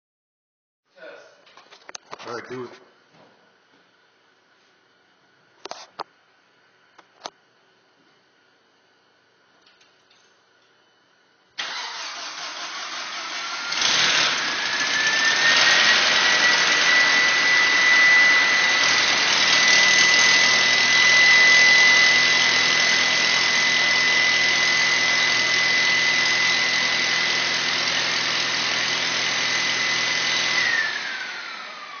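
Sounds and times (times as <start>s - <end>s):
engine high whine: 11.6s - 32.0s.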